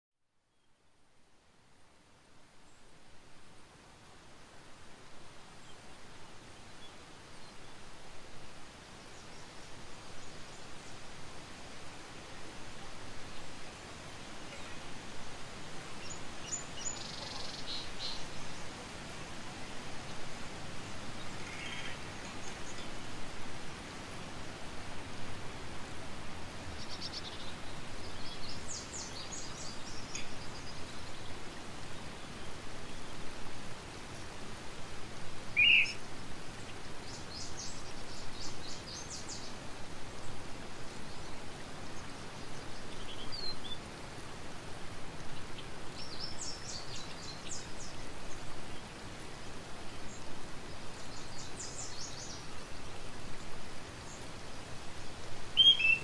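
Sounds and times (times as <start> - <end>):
steady hiss: 0.4 - 56.0
small birds chirping: 12.0 - 18.9, 19.5 - 23.2, 26.6 - 33.4, 35.5 - 44.0, 45.2 - 56.0.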